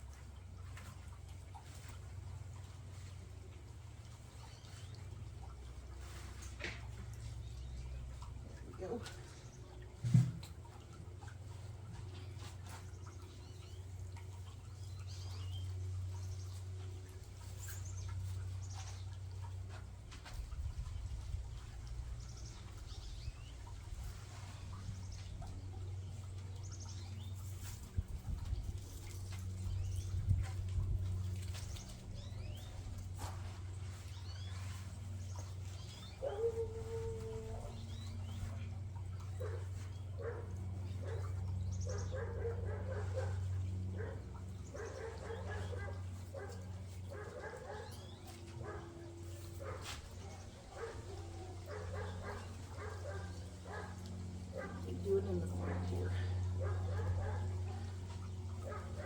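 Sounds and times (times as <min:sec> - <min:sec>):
steady low hum: 0:00.0 - 0:59.0
small birds chirping: 0:11.4 - 0:59.0
dog barking: 0:41.9 - 0:43.4, 0:44.0 - 0:48.9, 0:49.6 - 0:54.0, 0:54.6 - 0:58.0, 0:58.6 - 0:59.0.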